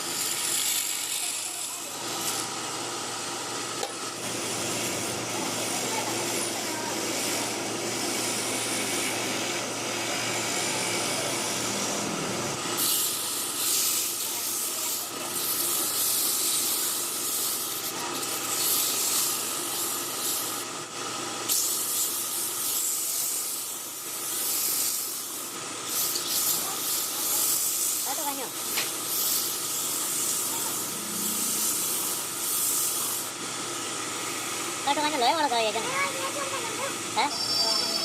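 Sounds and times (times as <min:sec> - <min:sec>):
machine hum: 0:28.4 - 0:34.8.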